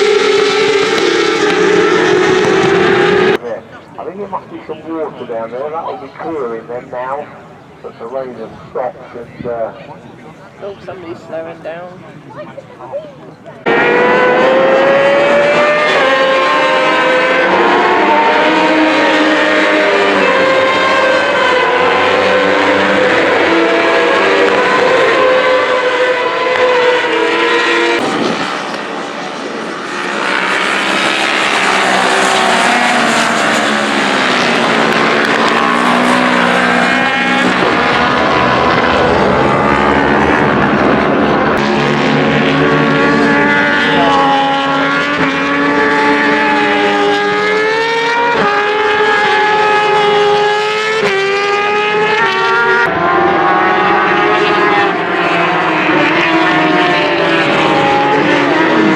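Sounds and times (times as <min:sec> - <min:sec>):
racing engines revving past: 0:00.0 - 0:07.2, 0:13.6 - 0:58.9.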